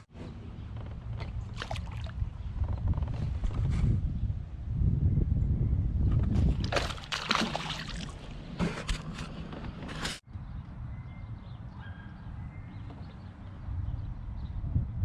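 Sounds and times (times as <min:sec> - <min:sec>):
wind rumble on microphone: 0:00.0 - 0:15.0
water splashing around kayak: 0:01.1 - 0:02.4, 0:06.4 - 0:09.5.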